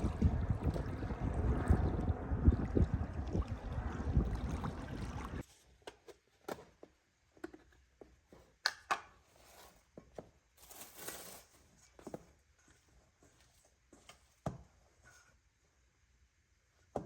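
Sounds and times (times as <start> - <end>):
steady rushing noise: 0.0 - 5.4.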